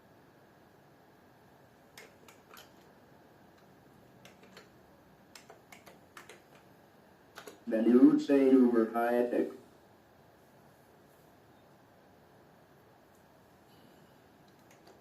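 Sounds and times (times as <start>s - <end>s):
keyboard key clicks: 2.0s - 2.8s, 3.6s - 4.7s, 5.3s - 6.7s, 7.4s - 7.6s, 14.5s - 15.0s.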